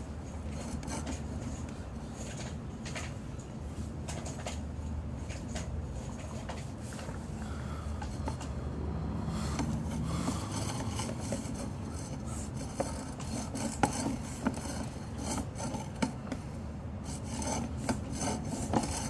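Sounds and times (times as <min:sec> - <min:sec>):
cable rubbing and scraping in pipe: 0:00.2 - 0:03.1, 0:09.4 - 0:16.4, 0:17.0 - 0:19.0.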